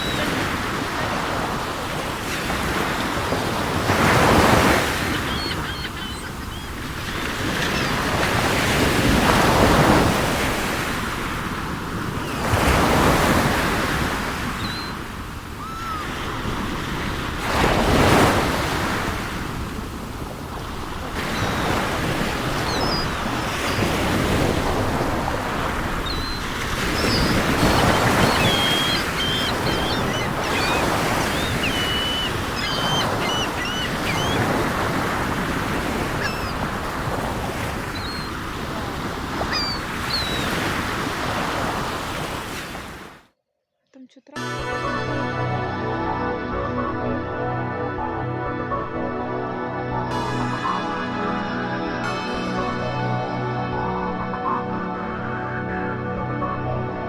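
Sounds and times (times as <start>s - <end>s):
birds chirping: 0.0s - 10.1s, 12.2s - 16.6s, 20.4s - 42.8s
waves washing onto shore: 0.0s - 43.2s.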